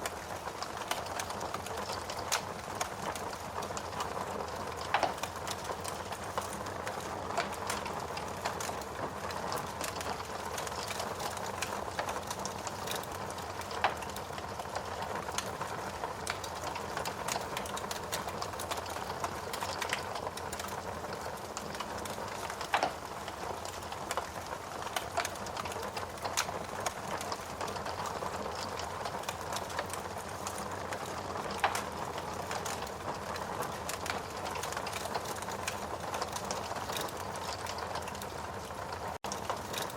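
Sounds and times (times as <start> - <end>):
wood fire crackling: 0.0 - 39.9
logs popping: 21.5 - 24.3.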